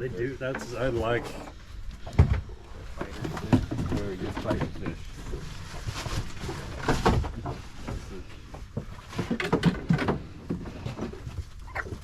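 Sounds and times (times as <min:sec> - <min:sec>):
knocks and thumps on boat deck: 0:02.0 - 0:05.1.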